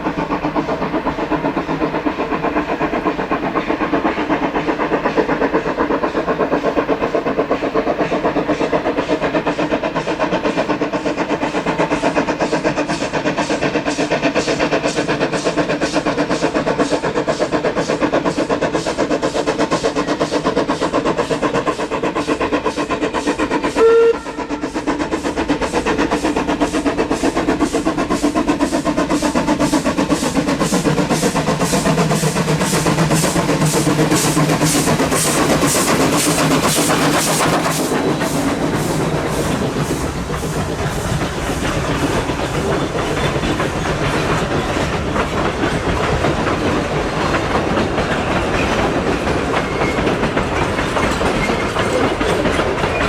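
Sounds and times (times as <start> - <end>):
steam locomotive exhaust beats: 0.0 - 53.0
steam whistle blast: 23.7 - 24.8.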